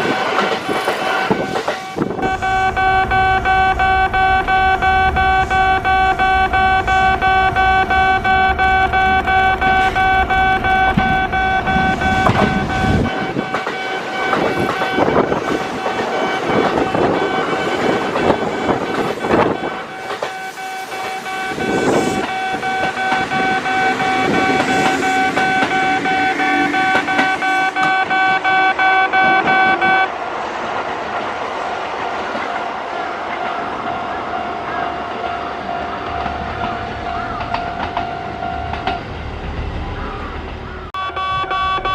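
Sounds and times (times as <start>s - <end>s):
train wheels clattering on rails: 0.0s - 4.1s, 4.9s - 40.6s
steady high-pitched tone: 0.0s - 30.1s.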